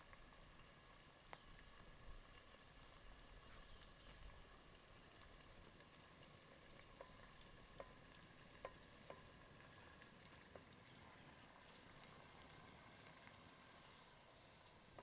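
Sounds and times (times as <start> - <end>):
faint outdoor hiss: 0.0 - 15.0
soft sharp ticks: 1.3 - 1.6, 5.8 - 9.3.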